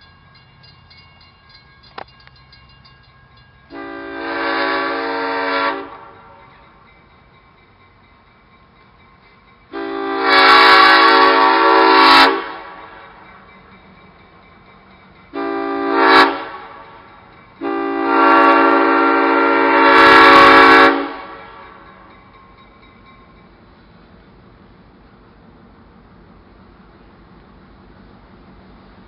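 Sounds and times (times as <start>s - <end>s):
locomotive air horn blasts: 3.7s - 6.4s, 9.7s - 13.1s, 15.4s - 17.0s, 17.6s - 21.8s.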